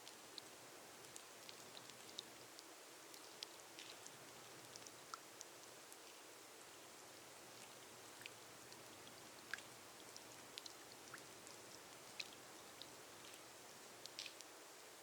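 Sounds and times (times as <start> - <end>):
faint rain hiss: 0.0 - 15.0.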